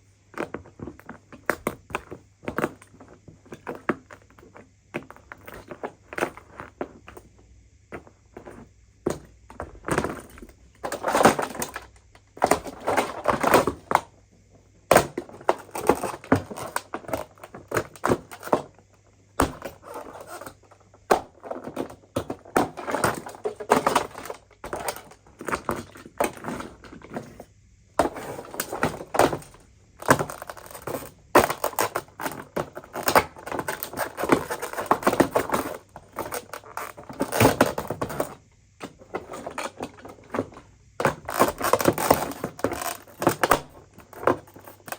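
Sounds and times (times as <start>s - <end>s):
plastic and metal parts cracking: 10.0s - 14.0s, 14.9s - 18.8s, 19.4s - 27.4s, 28.0s - 44.9s.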